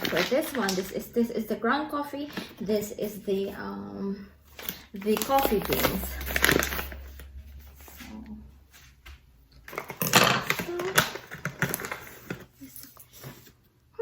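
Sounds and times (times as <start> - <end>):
foil bag crinkling: 0.0 - 1.2, 4.6 - 8.0, 9.7 - 13.3.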